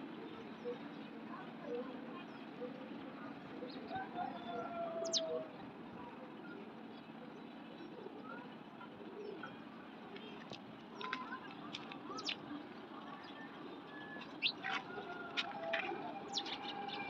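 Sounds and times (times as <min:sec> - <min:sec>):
faint outdoor background noise: 0:00.0 - 0:17.0
bird chirps and clicks: 0:10.2 - 0:12.5.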